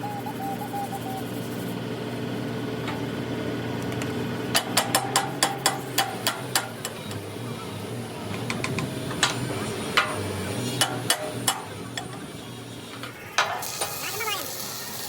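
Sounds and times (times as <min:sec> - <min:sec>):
hammer striking steel: 0:04.6 - 0:06.8.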